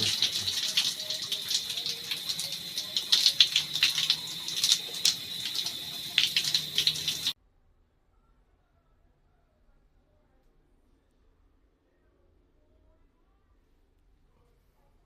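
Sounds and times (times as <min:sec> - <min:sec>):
shower water spraying: 0:00.0 - 0:07.4.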